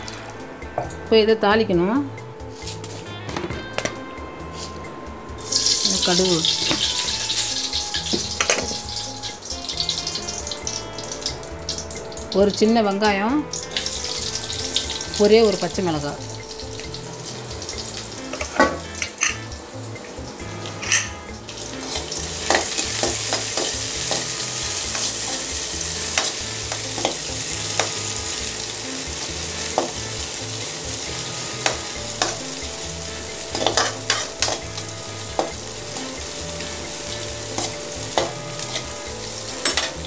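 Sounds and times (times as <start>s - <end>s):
food sizzling in hot oil: 4.5s - 40.0s
metal spatula scraping pan: 33.5s - 40.0s.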